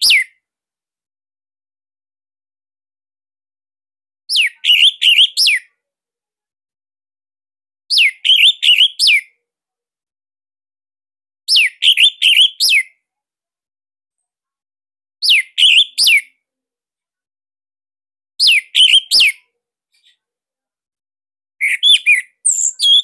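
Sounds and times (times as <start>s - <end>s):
thrush singing falling whistles: 4.3s - 5.6s, 7.9s - 9.2s, 11.5s - 12.8s, 15.2s - 16.2s, 18.4s - 19.4s, 21.6s - 23.0s.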